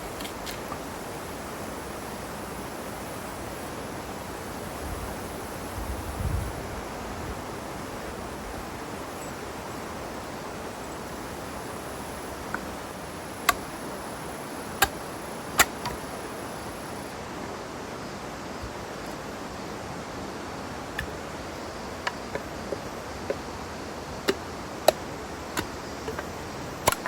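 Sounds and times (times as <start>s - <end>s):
wood fire hissing: 0.0s - 17.2s.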